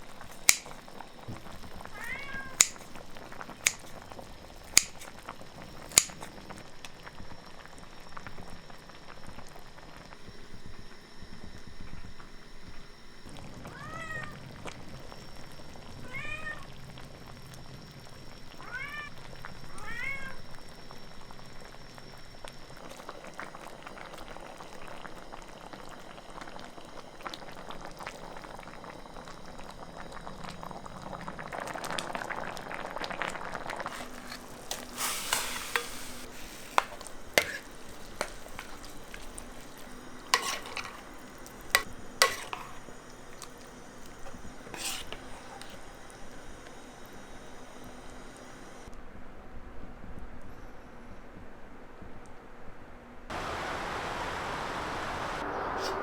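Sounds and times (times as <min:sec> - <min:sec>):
crackling cooking hiss: 0:00.0 - 0:49.0, 0:53.3 - 0:56.0
cat meowing: 0:01.9 - 0:02.8, 0:13.7 - 0:14.4, 0:16.0 - 0:16.7, 0:18.6 - 0:19.1.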